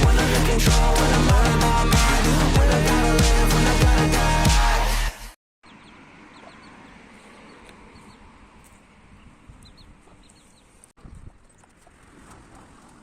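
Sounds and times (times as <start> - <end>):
birds chirping: 5.6 - 12.1.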